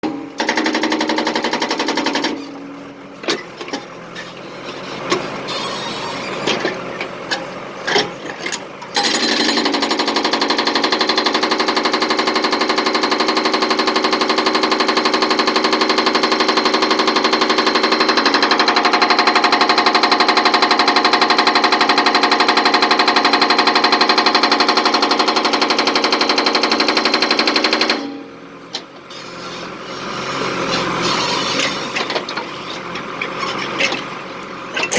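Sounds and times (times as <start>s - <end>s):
jackhammer hammering: 0.0s - 2.6s, 8.9s - 28.4s.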